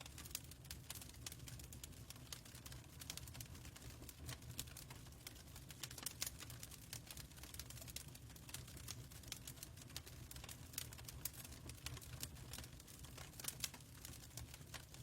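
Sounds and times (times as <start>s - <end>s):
fireplace crackling: 0.0s - 15.0s.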